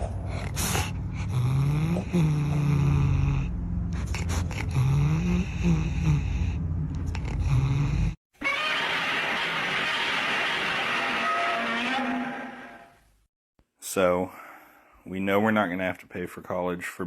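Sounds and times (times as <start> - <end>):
cat yowling: 8.4 - 9.1.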